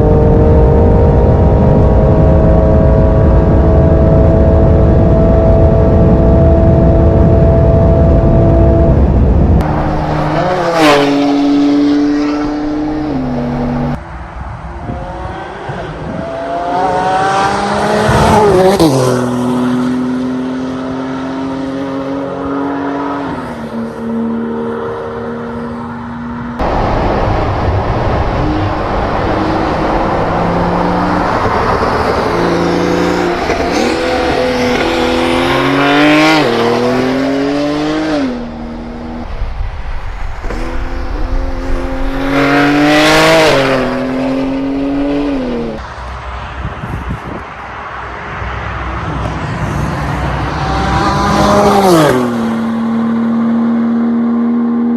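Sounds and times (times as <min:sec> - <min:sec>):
car engine accelerating hard: 0:14.9 - 0:45.8, 0:48.8 - 0:54.9.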